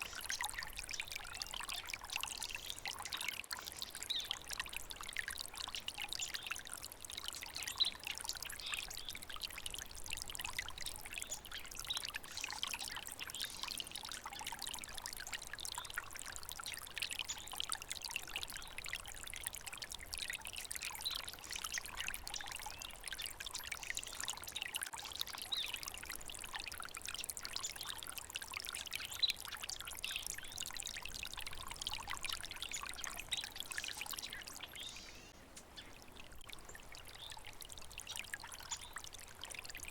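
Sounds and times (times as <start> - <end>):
stream trickling and babbling: 0.0 - 39.9.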